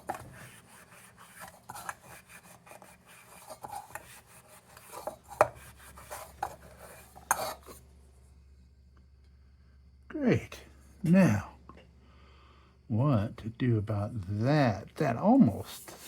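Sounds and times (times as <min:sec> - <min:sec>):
hand rubbing on metal part: 0:15.4 - 0:16.0.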